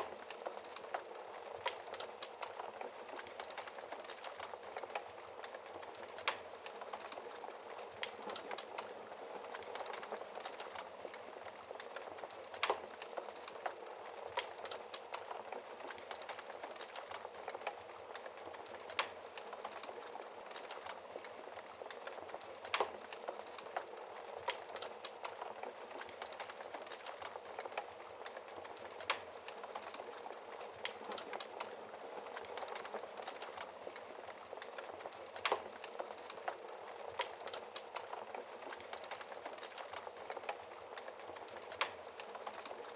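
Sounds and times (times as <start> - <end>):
wood fire crackling: 0.0 - 42.9.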